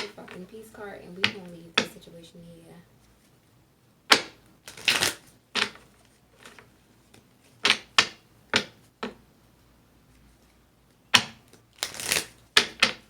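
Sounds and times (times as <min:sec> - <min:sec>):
cards snapping and slapping: 0:04.1 - 0:08.8, 0:11.2 - 0:13.0
cards riffling: 0:04.6 - 0:07.9, 0:11.5 - 0:13.0.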